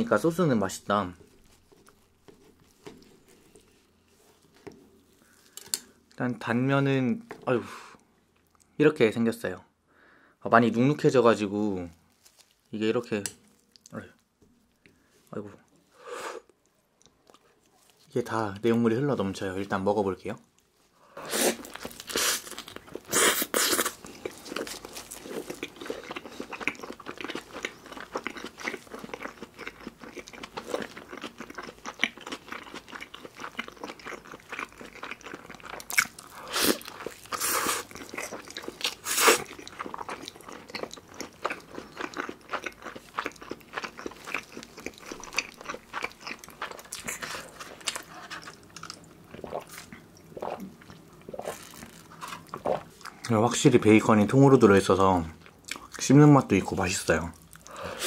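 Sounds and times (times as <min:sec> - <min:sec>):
person chewing: 0:01.2 - 0:06.2, 0:16.4 - 0:18.0, 0:21.2 - 0:53.3, 0:55.4 - 0:56.0, 0:57.4 - 0:58.0.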